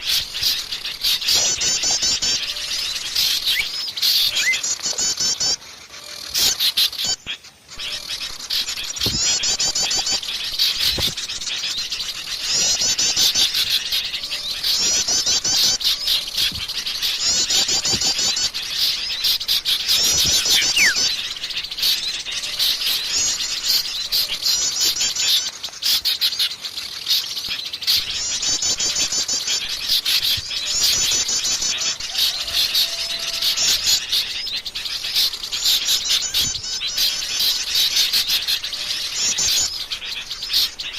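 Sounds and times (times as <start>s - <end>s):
rapid high bird trills: 0.0s - 27.3s
songbirds chirping: 0.0s - 40.9s.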